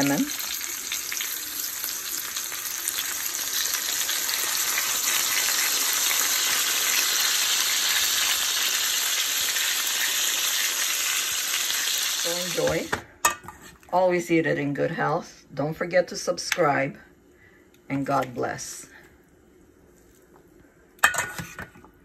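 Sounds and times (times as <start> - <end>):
meat frying with crackling: 0.0 - 13.0.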